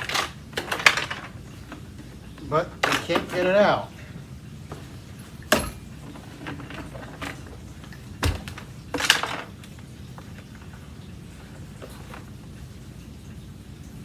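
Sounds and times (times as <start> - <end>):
loose plastic piece rattling: 0.0 - 3.7, 5.5 - 10.5.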